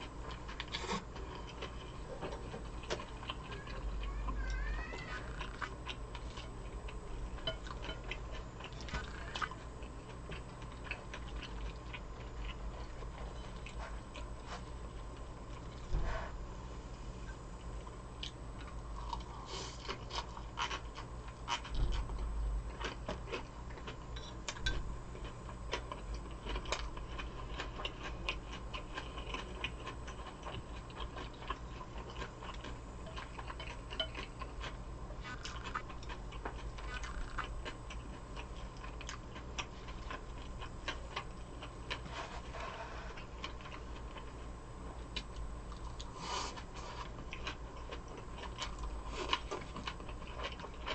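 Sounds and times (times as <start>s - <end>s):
chewing with wet mouth clicks: 17.6s - 42.0s, 45.1s - 50.9s.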